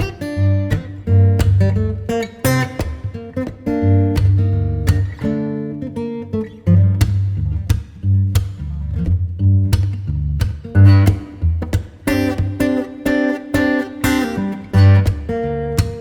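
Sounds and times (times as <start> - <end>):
plucked acoustic guitar: 0.0 - 16.0
low bass notes: 0.4 - 2.1, 3.8 - 5.3, 6.6 - 12.6.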